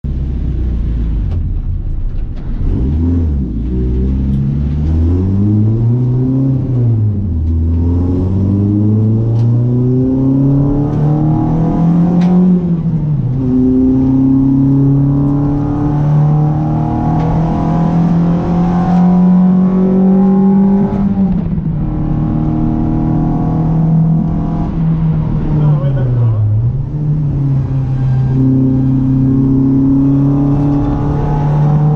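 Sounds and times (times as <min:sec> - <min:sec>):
car engine revving hard: 0:02.6 - 0:31.9.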